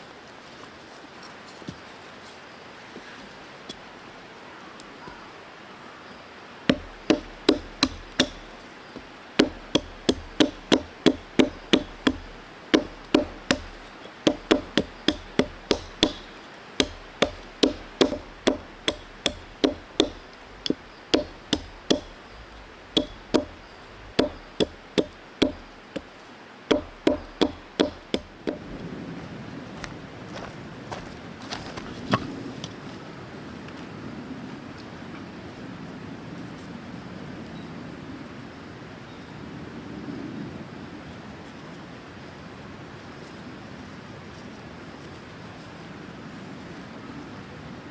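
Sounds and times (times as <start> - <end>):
hand tool striking hard: 6.7 - 28.6.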